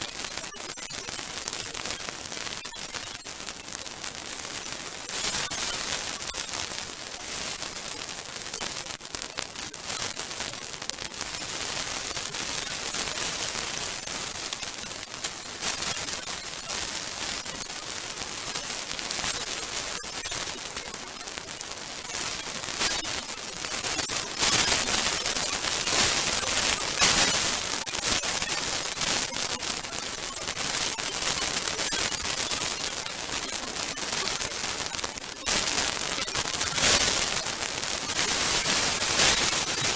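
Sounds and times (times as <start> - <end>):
bonfire crackling and popping: 3.2 - 15.9.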